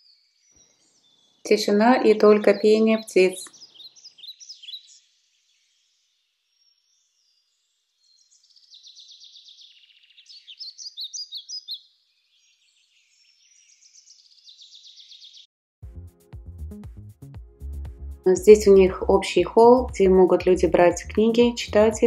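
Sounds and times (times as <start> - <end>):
birdsong trills and chirps: 0.0 - 15.5.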